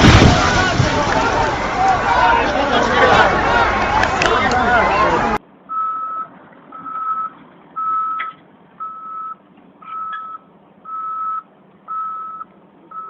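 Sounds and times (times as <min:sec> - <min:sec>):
vehicle back-up alarm beeping: 0:05.7 - 0:13.0.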